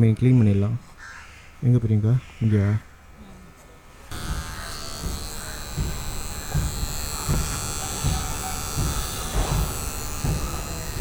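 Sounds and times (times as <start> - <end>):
electric trimmer buzzing: 4.0 - 11.0
dull handling thumps: 4.1 - 11.0.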